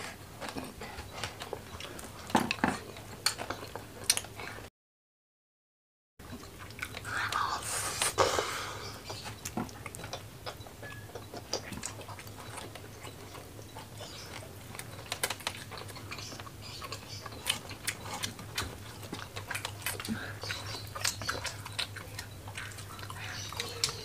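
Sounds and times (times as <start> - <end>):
eating by hand: 0.0 - 4.7, 6.2 - 24.0
faint low hum: 6.2 - 24.0.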